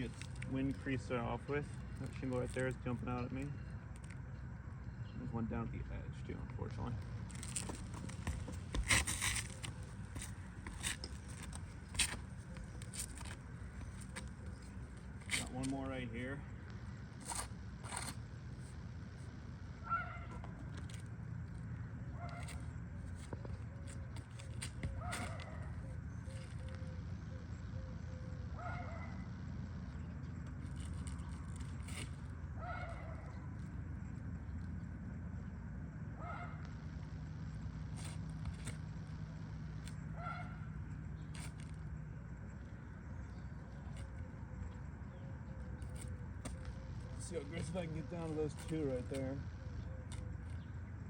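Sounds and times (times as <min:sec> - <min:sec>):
low outdoor rumble: 0:00.0 - 0:51.0
scrapes on shingle roof: 0:07.3 - 0:14.3.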